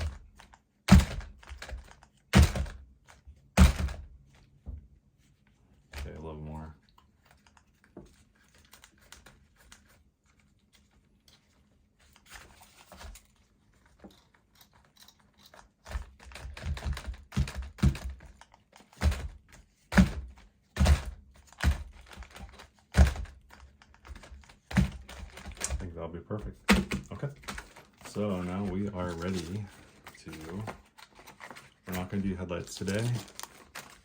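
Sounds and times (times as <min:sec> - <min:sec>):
sharp knocks and thunks: 0:00.9 - 0:02.8, 0:03.6 - 0:04.1, 0:16.5 - 0:18.2, 0:19.0 - 0:23.4, 0:24.1 - 0:28.2.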